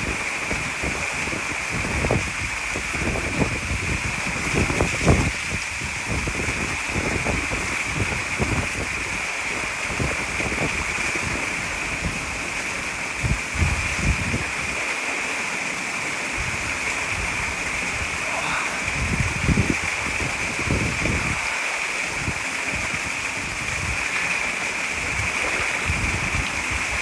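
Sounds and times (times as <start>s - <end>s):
waterfall pouring into pool: 0.0s - 27.0s
low thumps and rumbles: 18.8s - 21.4s.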